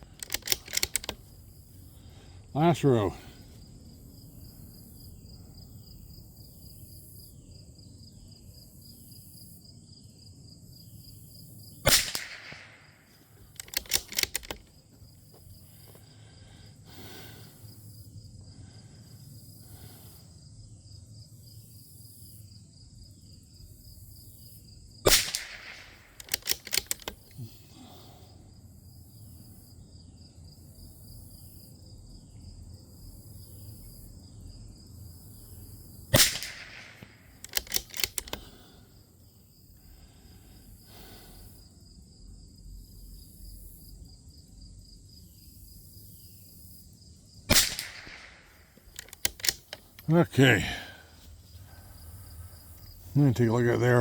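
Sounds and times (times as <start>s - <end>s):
insects chirping: 0.0s - 54.0s
rifle bolt clicking: 0.1s - 1.2s, 11.9s - 12.7s, 13.5s - 14.7s, 25.1s - 27.4s, 36.2s - 38.5s, 47.5s - 50.1s
rifle shots: 11.9s - 12.9s, 13.6s - 14.6s, 25.1s - 27.2s, 36.1s - 38.4s, 47.5s - 49.8s.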